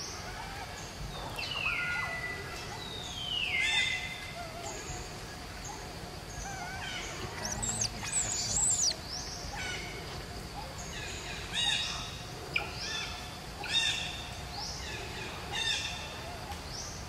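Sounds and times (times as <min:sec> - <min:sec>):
birds whistled chirps: 0:00.0 - 0:10.0
faint outdoor hiss: 0:00.0 - 0:17.0.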